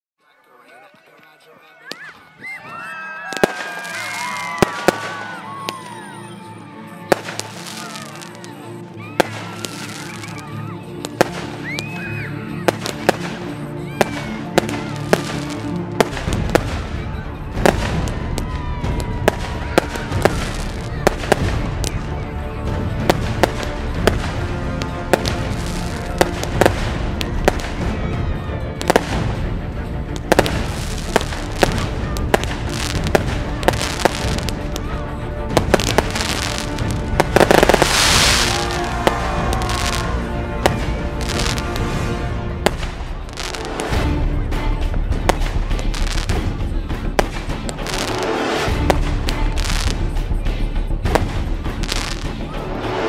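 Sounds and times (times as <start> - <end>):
fireworks bursting with crackle: 3.2 - 6.0, 7.0 - 28.0, 28.8 - 53.0
film score music: 4.0 - 53.0
hissing crackle: 7.2 - 8.6.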